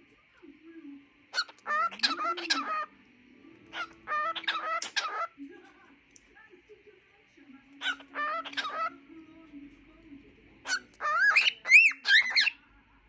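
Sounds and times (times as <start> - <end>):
cockatiel singing: 1.3 - 5.4, 7.8 - 9.0, 10.6 - 12.6.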